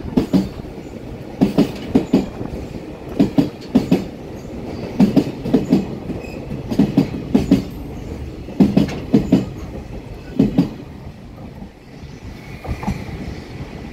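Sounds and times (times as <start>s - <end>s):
train wheels clacking over rail joint: 0.2s - 0.6s, 1.4s - 2.4s, 3.1s - 10.8s.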